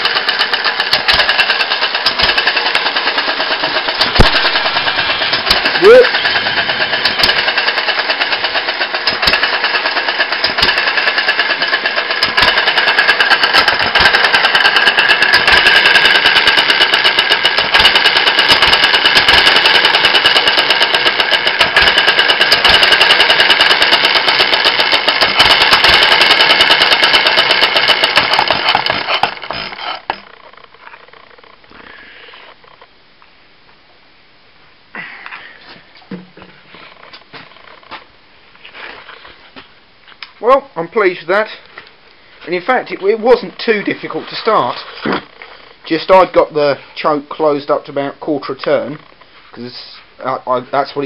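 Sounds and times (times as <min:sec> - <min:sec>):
petrol engine running: 0:00.0 - 0:30.2.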